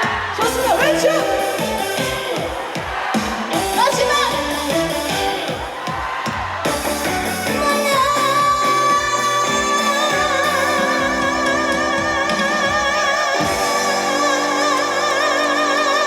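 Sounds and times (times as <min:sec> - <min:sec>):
backing music: 0:00.0 - 0:16.0
woman singing long high note: 0:06.8 - 0:16.0.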